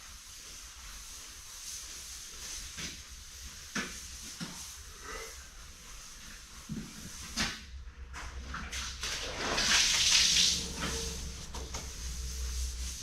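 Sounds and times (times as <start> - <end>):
low steady hum: 7.8 - 13.0
running water rushing: 9.0 - 12.5.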